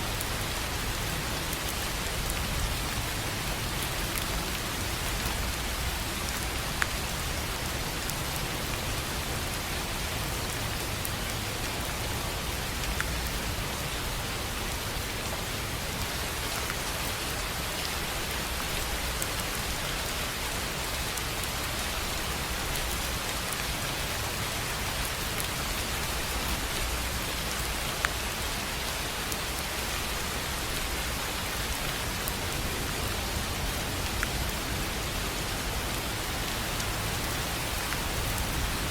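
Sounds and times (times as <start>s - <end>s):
rain on a tin roof: 0.0s - 38.9s.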